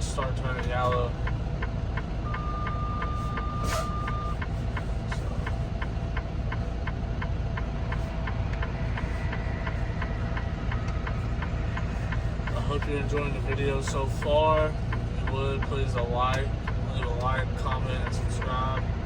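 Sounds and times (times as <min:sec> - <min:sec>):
diesel engine low rumble: 0:00.0 - 0:19.0
turn signal ticking: 0:00.0 - 0:19.0
steady beep: 0:02.2 - 0:04.4.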